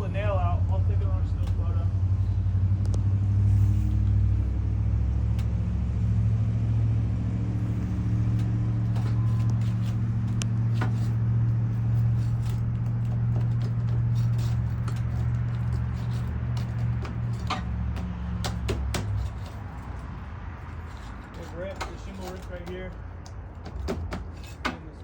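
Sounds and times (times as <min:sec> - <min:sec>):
flat bar prying nail from shingles: 0:12.4 - 0:19.6, 0:21.4 - 0:24.9.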